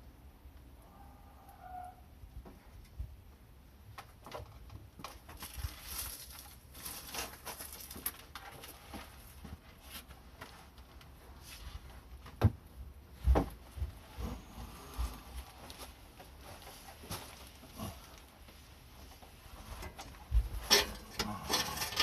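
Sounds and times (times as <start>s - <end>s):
tools clicking and knocking: 19.9s - 22.0s.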